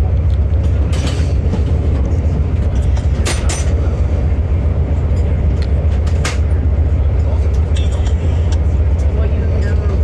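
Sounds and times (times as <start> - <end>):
train rumble inside carriage: 0.0 - 10.0.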